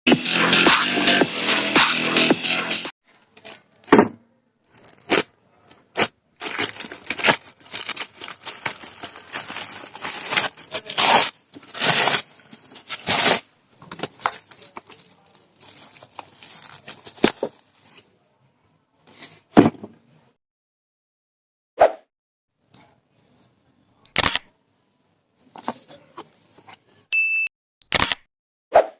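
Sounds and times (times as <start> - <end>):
packaging tearing and crinkling: 4.7 - 17.5
sharp clicks: 27.9 - 28.3.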